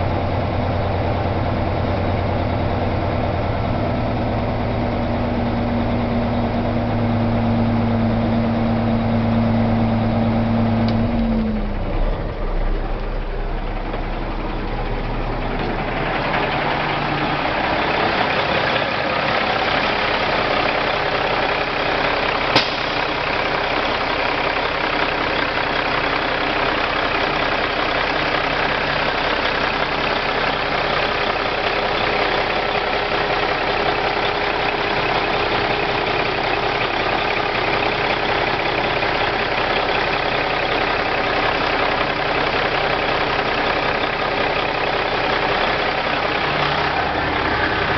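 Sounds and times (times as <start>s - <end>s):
diesel truck engine idling: 0.0s - 47.9s
sharp click: 22.6s - 23.0s.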